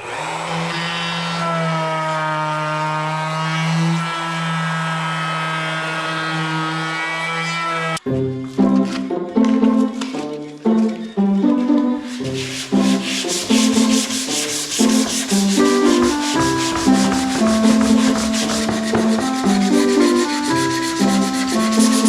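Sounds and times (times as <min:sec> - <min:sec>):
background music: 0:08.0 - 0:22.0
sandpaper rubbing on wood: 0:12.0 - 0:22.0.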